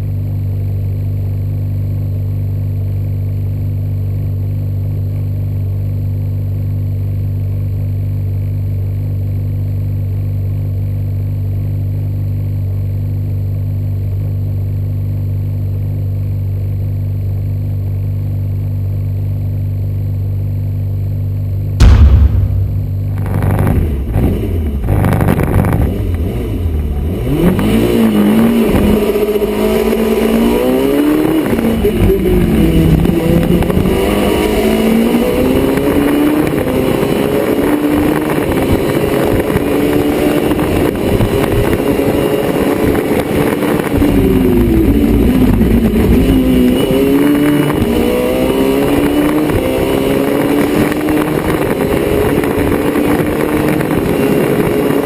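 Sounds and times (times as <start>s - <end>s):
race car engine revving: 42.1s - 52.6s.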